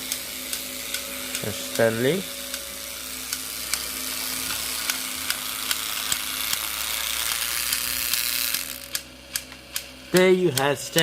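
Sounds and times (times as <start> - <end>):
toy train motor whirring: 0.0 - 11.0
regular clicking: 4.5 - 11.0.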